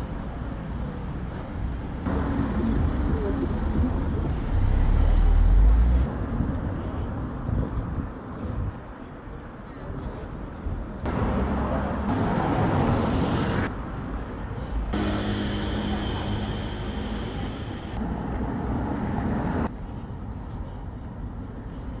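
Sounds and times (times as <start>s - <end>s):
vehicles passing: 0.0s - 8.1s, 11.0s - 19.8s
vehicle engine steady note: 2.1s - 6.1s, 14.9s - 19.7s.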